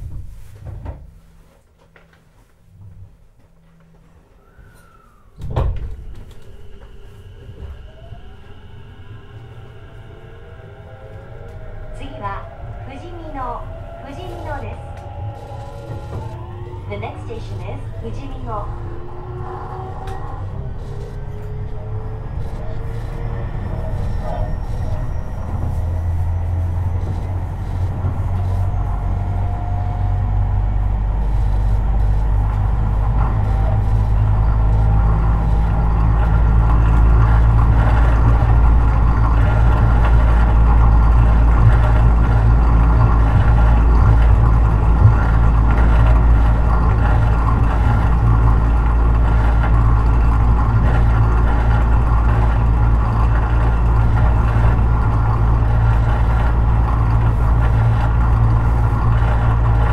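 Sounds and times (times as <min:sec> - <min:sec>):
train wheels rumbling on rails: 0:00.0 - 0:59.9
electric motor whine: 0:06.2 - 0:59.9.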